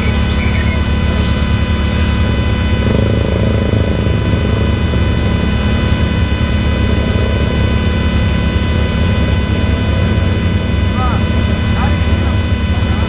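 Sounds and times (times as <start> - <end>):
high electrical whine: 0.0 - 13.0
vehicle engine rumble: 0.0 - 13.0.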